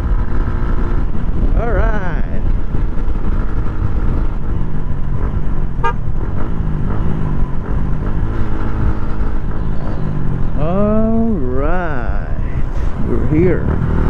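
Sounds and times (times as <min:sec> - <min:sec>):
motorcycle engine running: 0:00.0 - 0:12.2
vehicle horn toot: 0:05.8 - 0:06.0
wind rushing over microphone: 0:12.0 - 0:14.0.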